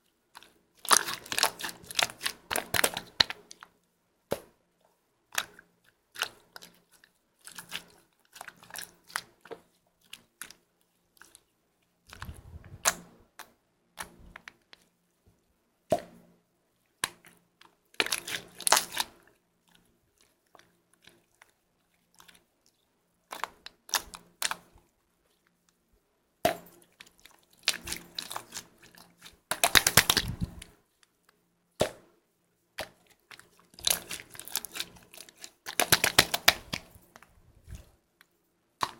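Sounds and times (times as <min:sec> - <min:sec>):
slime squishing: 0:00.3 - 0:03.7, 0:05.3 - 0:14.9, 0:17.0 - 0:25.4, 0:26.5 - 0:30.8, 0:32.8 - 0:38.0
sticky clicks and pops: 0:29.5 - 0:30.6, 0:35.7 - 0:36.9.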